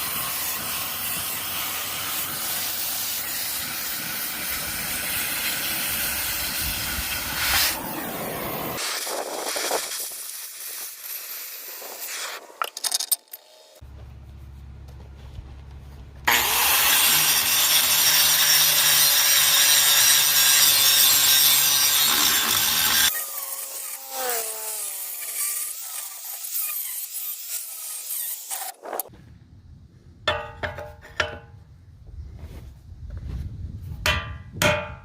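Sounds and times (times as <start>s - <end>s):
angle grinder cutting steel: 0.0s - 13.4s, 16.3s - 29.1s
metal knocks: 30.3s - 31.6s, 34.0s - 35.0s.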